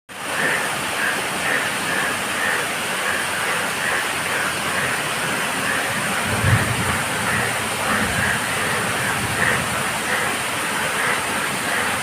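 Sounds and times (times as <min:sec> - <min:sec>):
steady rain: 0:00.1 - 0:12.0
frogs calling: 0:00.2 - 0:12.0.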